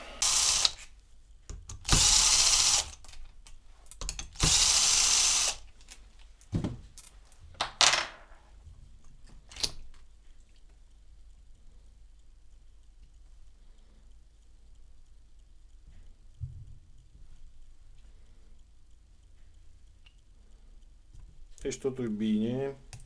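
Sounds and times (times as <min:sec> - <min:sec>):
power drill-driver running: 0:00.0 - 0:00.8, 0:01.8 - 0:03.0, 0:04.4 - 0:05.7
metal parts knocking: 0:03.9 - 0:04.6.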